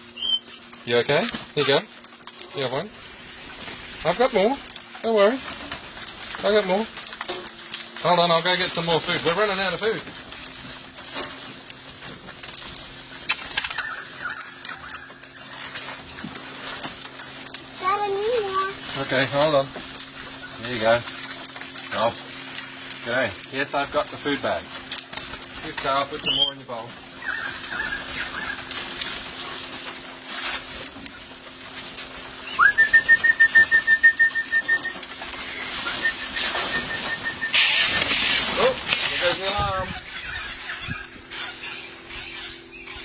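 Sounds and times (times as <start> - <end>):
beaks and feet tapping on bowls: 0.0 - 43.0
bird rapid pulsing whistled call: 0.1 - 0.5, 26.2 - 26.6, 32.4 - 38.4.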